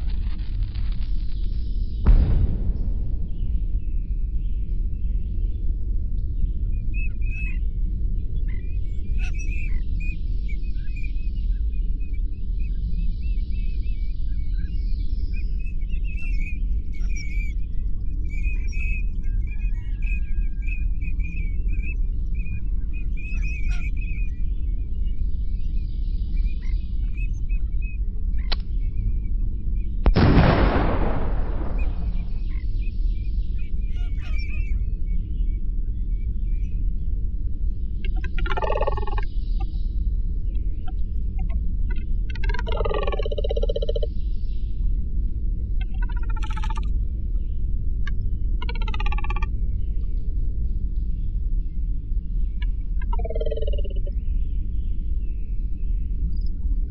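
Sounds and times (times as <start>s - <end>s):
steady low rumble: 0.0s - 56.9s
loud rushing burst: 30.2s - 32.4s.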